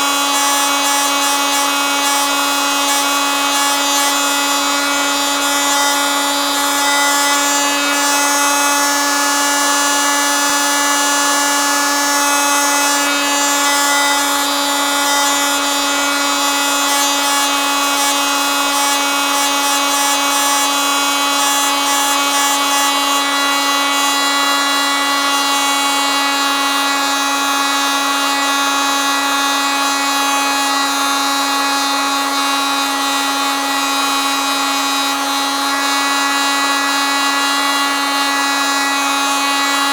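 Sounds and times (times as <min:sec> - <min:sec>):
oscillating multitool buzzing: 0:00.0 - 0:29.2.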